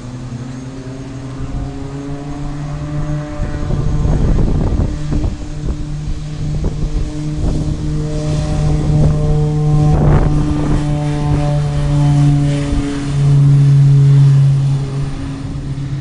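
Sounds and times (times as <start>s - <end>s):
engine humming: 0.0s - 16.0s
wind buffeting microphone: 0.0s - 16.0s.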